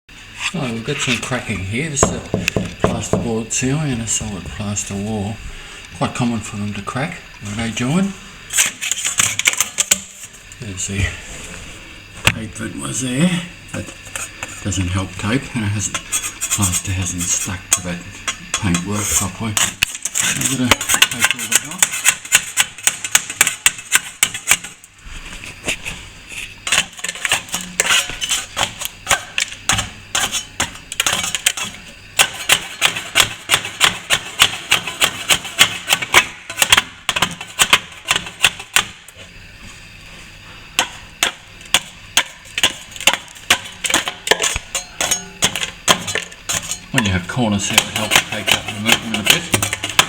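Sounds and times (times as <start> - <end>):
hand tool scraping plaster: 8.5 - 10.3, 13.8 - 24.7, 25.7 - 38.9, 40.8 - 50.0.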